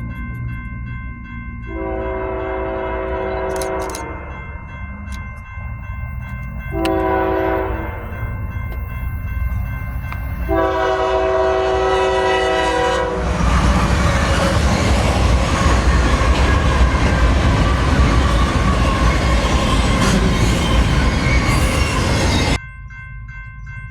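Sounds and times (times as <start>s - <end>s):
train wheels rumbling on rails: 0.0s - 22.6s
locomotive air horn: 1.7s - 4.3s, 6.7s - 8.1s, 10.5s - 13.8s.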